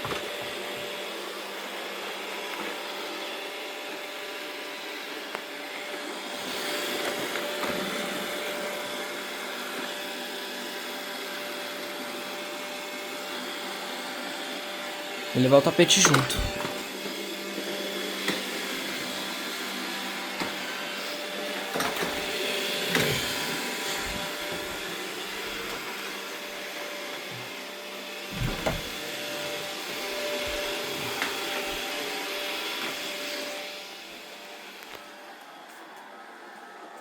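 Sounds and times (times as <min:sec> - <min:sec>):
robot vacuum motor whir: 0:15.8 - 0:35.0
vacuum bumping into things: 0:28.2 - 0:29.1.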